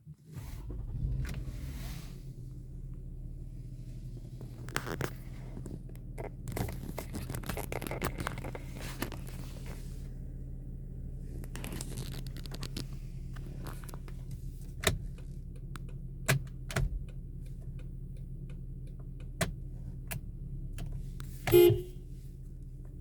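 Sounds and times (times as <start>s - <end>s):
car engine idling: 0.0s - 23.0s
crackling and rustling near microphone: 4.1s - 10.1s, 11.3s - 15.4s.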